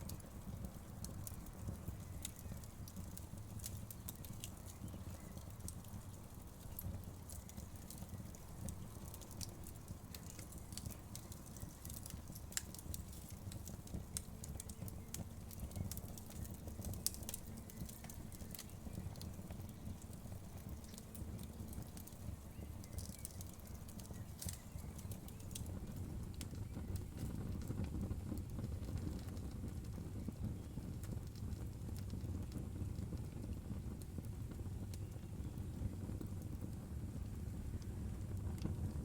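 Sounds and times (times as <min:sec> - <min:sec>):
burning wood crackling and popping: 0:00.0 - 0:39.0
low rumble of flames: 0:00.0 - 0:39.0.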